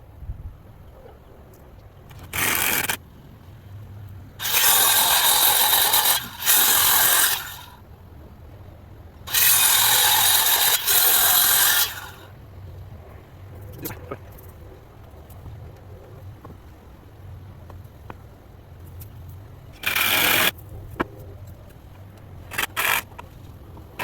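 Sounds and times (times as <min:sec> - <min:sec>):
power tool running in bursts: 0:04.4 - 0:07.8, 0:09.3 - 0:12.2.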